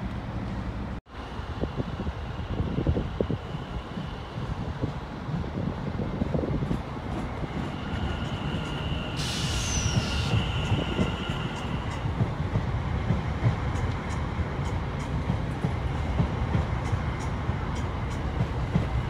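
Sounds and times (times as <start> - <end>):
train wheels rumbling on rails: 0.0 - 19.0
brief hiss: 9.1 - 11.1.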